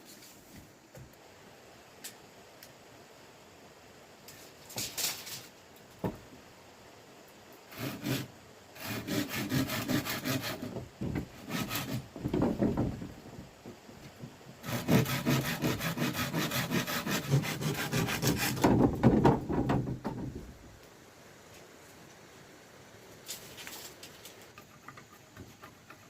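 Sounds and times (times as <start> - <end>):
hand saw cutting wood: 7.7 - 12.1, 14.6 - 18.9.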